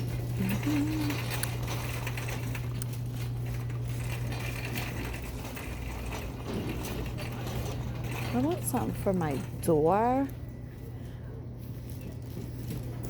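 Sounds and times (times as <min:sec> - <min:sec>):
light clicking and rattling: 0:00.0 - 0:10.4
steady low hum: 0:00.0 - 0:13.0.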